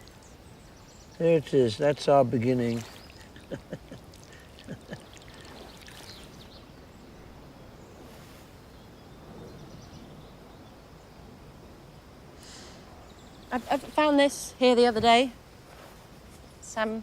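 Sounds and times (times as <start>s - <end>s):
soft wash of water: 0.0s - 16.9s
outdoor ambience: 0.0s - 17.0s
small water splashes: 2.4s - 6.7s.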